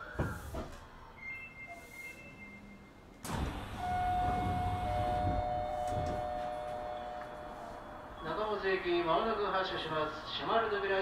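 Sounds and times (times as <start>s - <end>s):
train low rumble: 2.8s - 11.0s.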